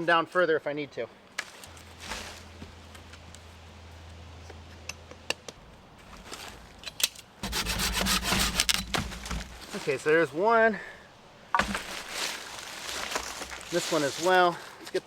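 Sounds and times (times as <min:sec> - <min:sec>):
hand saw scraping wood: 0:07.4 - 0:10.0.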